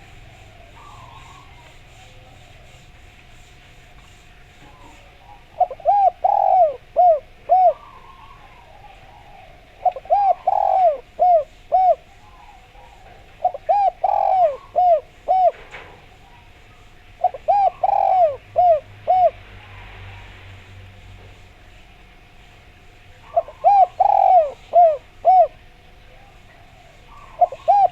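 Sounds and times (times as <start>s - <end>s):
dove cooing: 0.0s - 20.0s, 22.7s - 27.9s.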